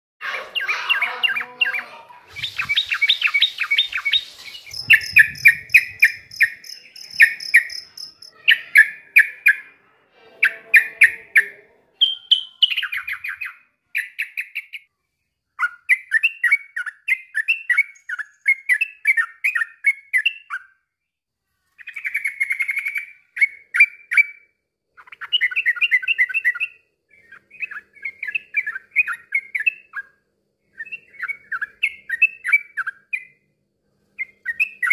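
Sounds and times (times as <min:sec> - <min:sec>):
bulbul singing chattering notes: 0:01.0 - 0:09.5.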